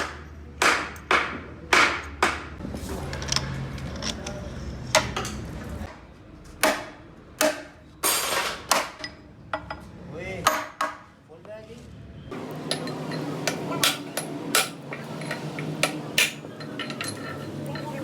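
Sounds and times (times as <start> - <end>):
hammer striking steel: 12.5 - 18.0.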